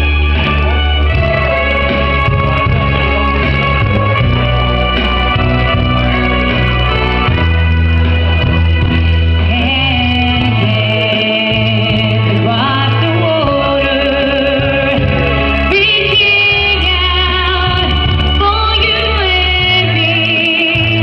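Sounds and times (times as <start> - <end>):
band accompaniment: 0.0 - 21.0
steady bass notes: 0.0 - 21.0
person singing with vibrato: 9.3 - 21.0.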